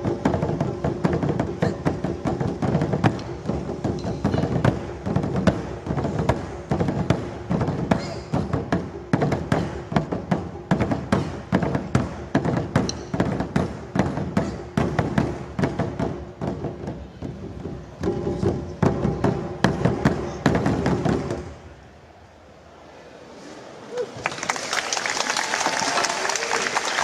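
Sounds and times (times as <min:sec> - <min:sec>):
sharp drum strikes: 0:00.0 - 0:21.6.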